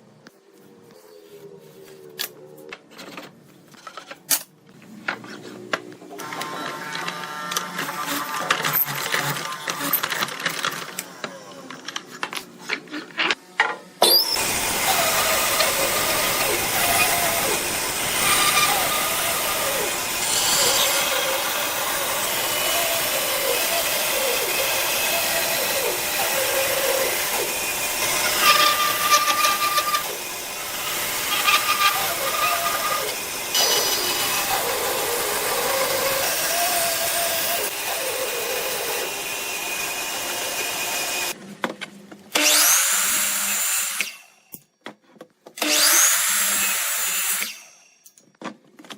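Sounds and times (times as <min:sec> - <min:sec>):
power tool cutting wood: 0:06.2 - 0:11.8, 0:14.0 - 0:41.4, 0:42.3 - 0:44.4, 0:45.6 - 0:47.9.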